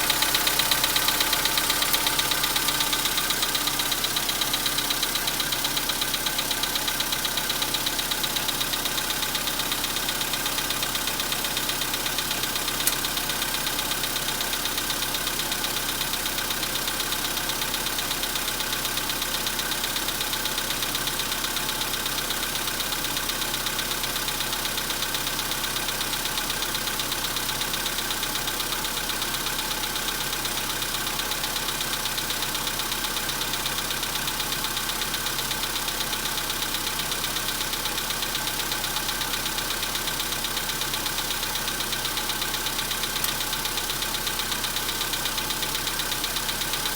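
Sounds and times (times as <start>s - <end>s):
car engine idling: 0.0s - 46.9s
rapid engine knock: 0.0s - 46.9s
sharp click: 12.8s - 13.1s.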